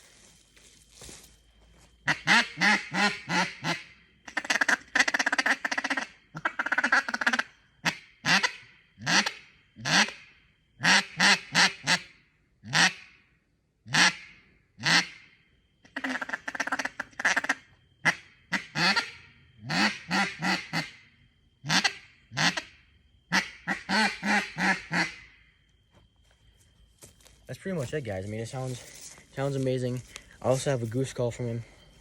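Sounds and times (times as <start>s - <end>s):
duck call quacks: 2.0s - 10.2s, 10.8s - 13.1s, 13.9s - 15.2s, 15.9s - 21.0s, 21.6s - 25.2s.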